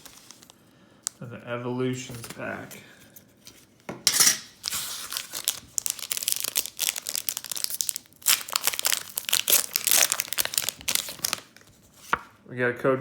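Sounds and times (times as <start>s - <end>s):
foil wrapper tearing and crinkling: 0.0s - 0.6s, 4.5s - 11.8s.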